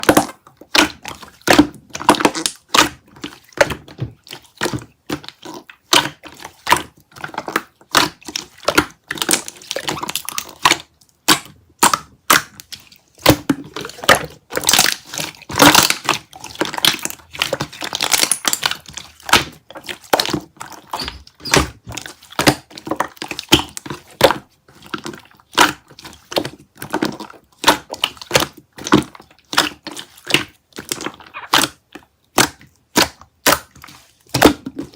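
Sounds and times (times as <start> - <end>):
slime squeezed by hand: 31.0 - 31.8.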